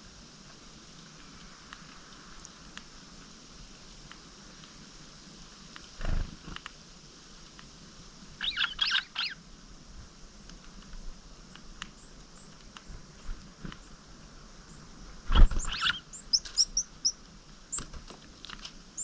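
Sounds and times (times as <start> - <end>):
faint clicks: 0.9 - 2.9, 5.7 - 6.8, 10.4 - 14.0
songbird chirping: 8.4 - 9.4, 13.7 - 19.0.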